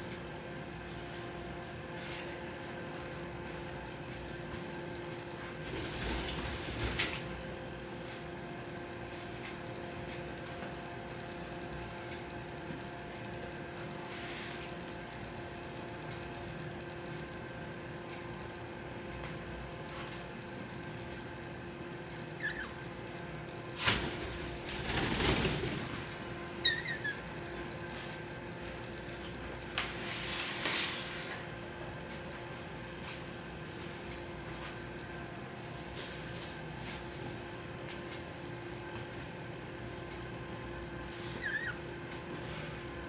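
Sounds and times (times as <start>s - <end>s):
steady mechanical hum: 0.0s - 43.0s
small birds chirping: 22.2s - 23.1s, 26.6s - 27.3s, 41.4s - 41.8s.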